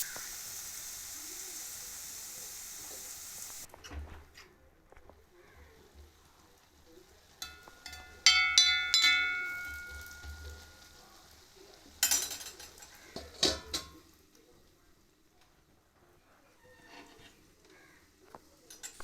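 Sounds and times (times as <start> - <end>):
metal utensils clinking: 7.3 - 11.2, 11.9 - 14.1, 18.6 - 19.0.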